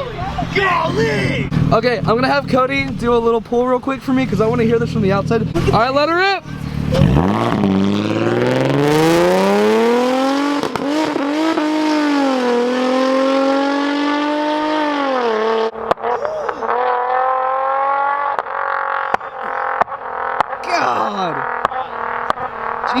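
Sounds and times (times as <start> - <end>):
car engine revving: 0.0 - 23.0
exhaust pops and cracks: 18.3 - 20.7, 21.6 - 23.0.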